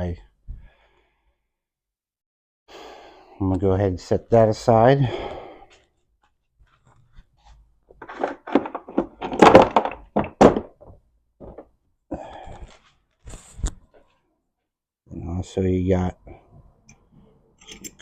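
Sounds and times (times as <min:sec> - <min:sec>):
metal parts clunking: 0:08.0 - 0:10.8.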